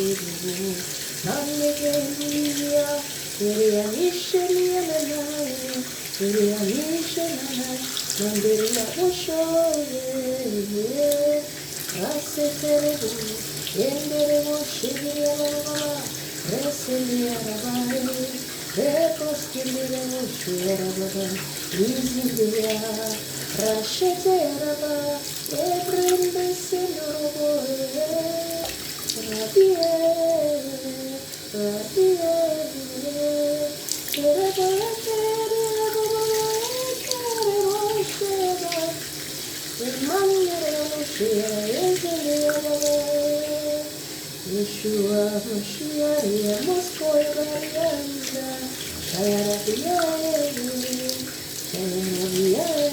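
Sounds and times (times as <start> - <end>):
person singing wordless melody: 0.0 - 39.1, 39.8 - 52.9.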